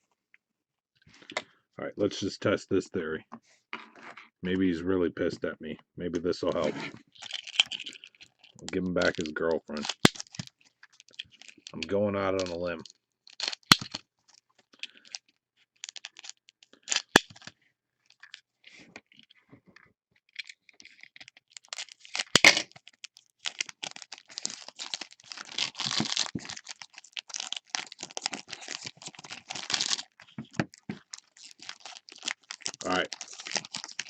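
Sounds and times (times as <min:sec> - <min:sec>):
clicks and rustles: 0:06.4 - 0:34.0
foil wrapper crinkling and tearing: 0:06.6 - 0:15.2, 0:15.8 - 0:17.5, 0:20.3 - 0:34.0
sharp crackle: 0:07.2 - 0:14.0, 0:20.9 - 0:34.0.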